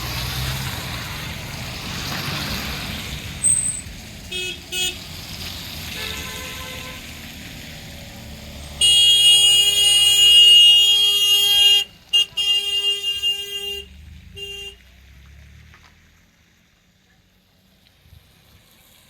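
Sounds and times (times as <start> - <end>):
low engine or traffic rumble: 0.0 - 19.0
vehicle horn honking: 6.0 - 7.0, 8.8 - 14.8.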